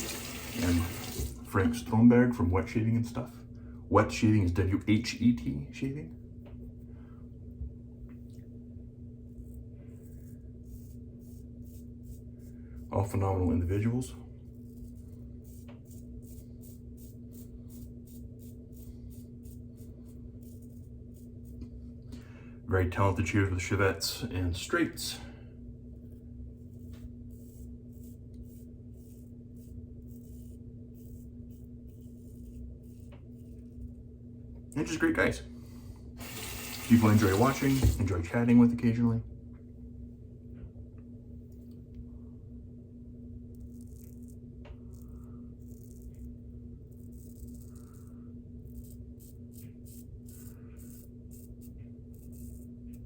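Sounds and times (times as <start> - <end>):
laundry machines humming: 0.0 - 1.7
razor scraping stubble: 9.4 - 21.8, 26.6 - 33.9, 43.6 - 53.0
low hum: 39.2 - 53.0.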